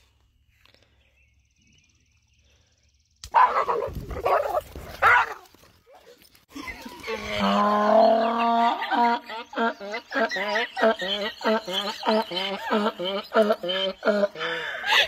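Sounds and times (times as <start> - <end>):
dog barking loudly: 3.3 - 5.4.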